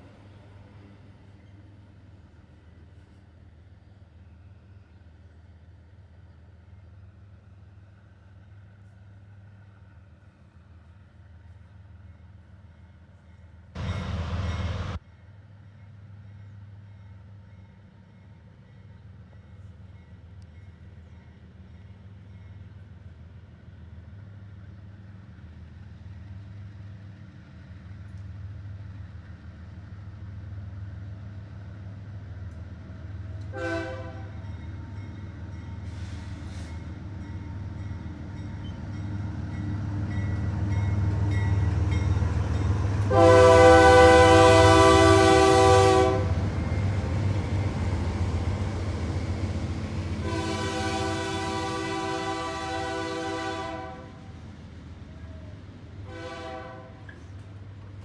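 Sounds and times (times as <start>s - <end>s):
diesel locomotive engine rumble: 0.0s - 15.0s, 15.6s - 58.0s
train horn blasts: 33.4s - 34.5s, 43.0s - 46.5s, 50.1s - 54.3s, 56.0s - 57.2s.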